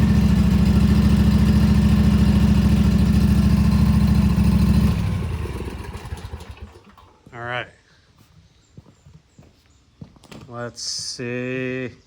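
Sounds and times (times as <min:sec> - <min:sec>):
lawn mower engine running: 0:00.0 - 0:07.3.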